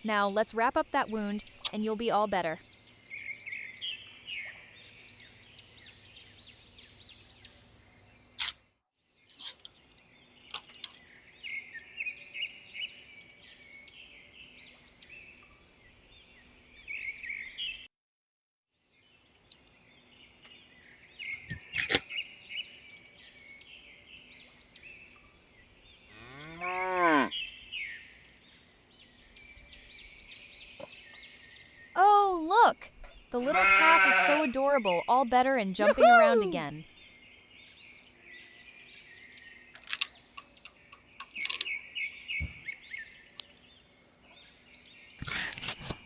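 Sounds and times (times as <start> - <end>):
birds chirping: 0.0 - 8.5, 9.1 - 17.9, 18.8 - 46.0
cow mooing: 26.1 - 27.3, 33.4 - 34.5
sharp clicks: 39.8 - 41.8.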